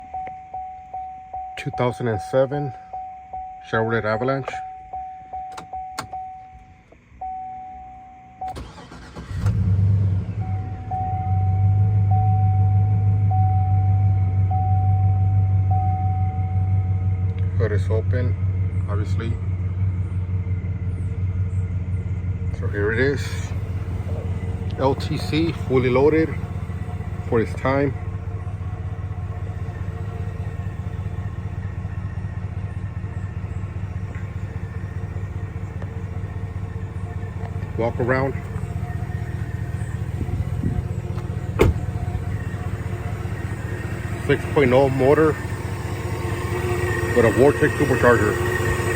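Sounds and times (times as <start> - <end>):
electronic warning chime: 0.0 - 6.6, 7.2 - 8.6, 10.4 - 17.1
car engine cranking and idling: 0.0 - 48.9
faint steady whine: 0.0 - 48.9.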